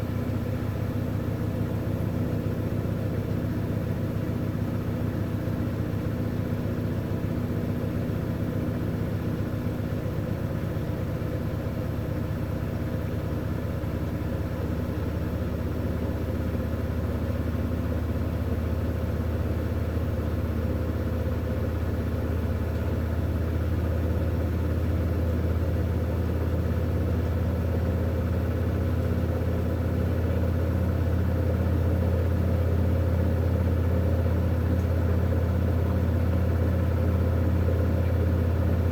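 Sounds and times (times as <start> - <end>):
washing machine motor hum: 23.8 - 38.9.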